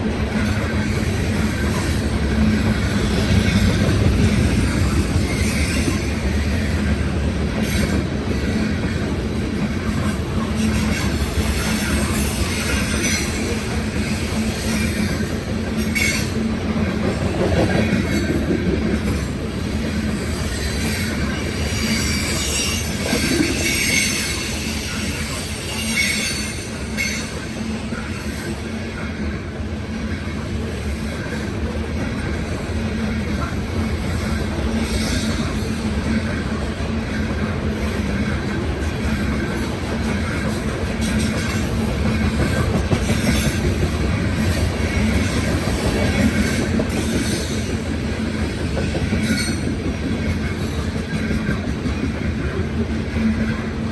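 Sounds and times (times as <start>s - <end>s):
train wheels rolling on rails: 0.0s - 53.9s.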